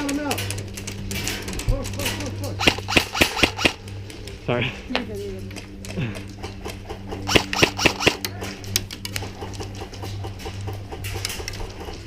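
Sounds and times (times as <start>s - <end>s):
steady low hum: 0.0s - 12.0s
airsoft guns firing: 2.6s - 3.9s, 7.2s - 8.3s.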